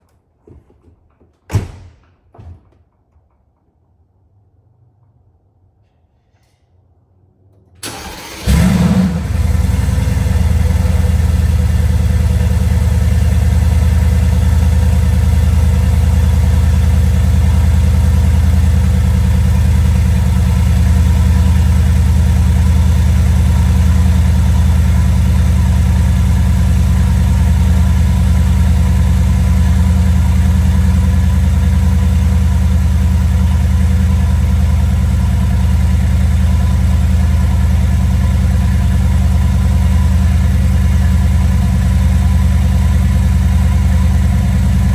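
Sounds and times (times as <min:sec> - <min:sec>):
car engine idling: 0:07.8 - 0:44.9.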